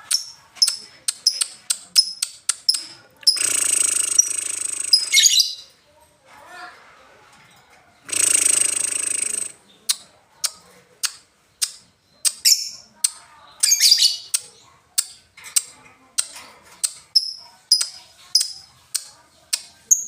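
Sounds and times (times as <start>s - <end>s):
bird sharp ticking chirps: 0.0s - 5.6s, 8.1s - 20.0s
bird harsh buzzing call: 3.3s - 5.4s, 8.1s - 9.6s.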